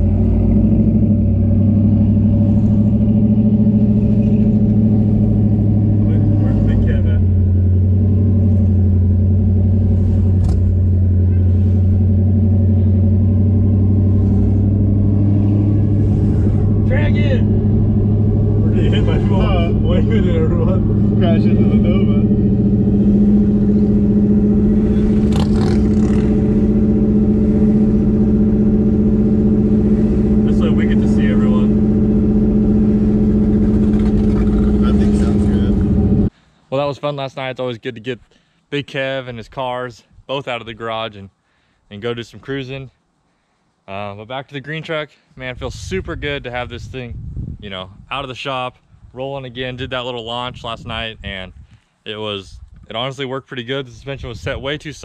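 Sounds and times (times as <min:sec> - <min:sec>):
car engine running: 0:00.0 - 0:36.3.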